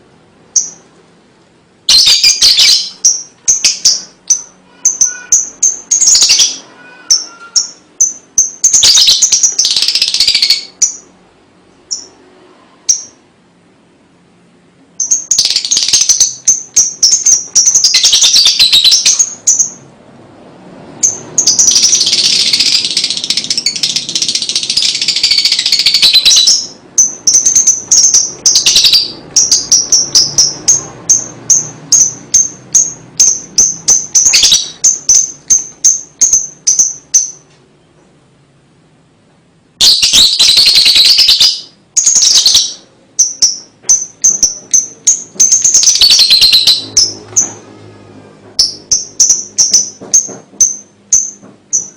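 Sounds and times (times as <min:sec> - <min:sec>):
lovebird harsh chatter: 0:01.9 - 0:11.1, 0:15.0 - 0:19.8, 0:21.0 - 0:37.4, 0:39.8 - 0:47.6.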